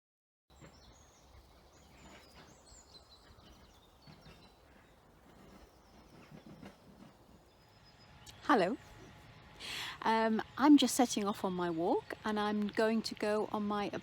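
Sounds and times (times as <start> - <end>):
small birds chirping: 0.5 - 9.3.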